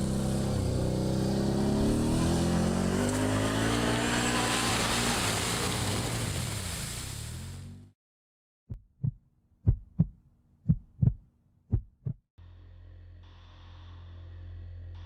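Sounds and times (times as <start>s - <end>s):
atv engine accelerating: 0.0s - 5.9s.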